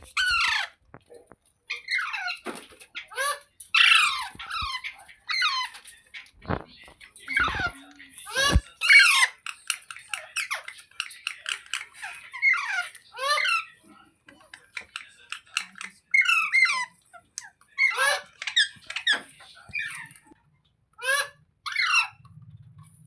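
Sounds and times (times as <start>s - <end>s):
parrot squeaky calls: 0.0s - 0.8s, 1.7s - 6.2s, 7.3s - 13.8s, 14.9s - 16.9s, 17.8s - 20.2s, 21.0s - 22.2s.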